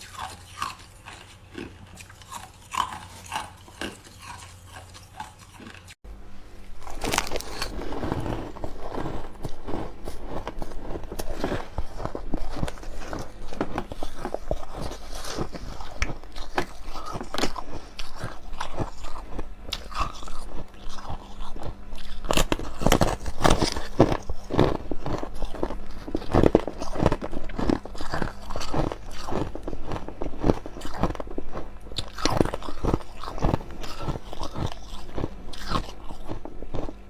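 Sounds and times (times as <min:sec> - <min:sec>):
ice crunching: 0:06.8 - 0:19.2.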